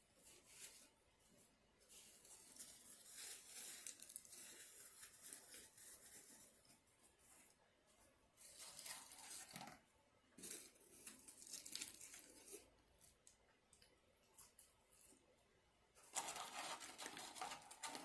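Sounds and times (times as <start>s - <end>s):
paper wrapper crinkling: 2.3s - 6.3s, 10.4s - 13.2s, 16.0s - 18.0s.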